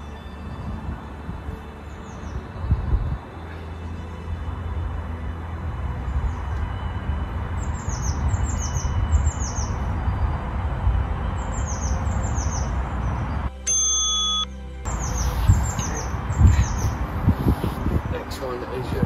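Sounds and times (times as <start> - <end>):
bird chirping: 7.5 - 10.6, 11.2 - 18.0
steady held tone: 13.5 - 15.0.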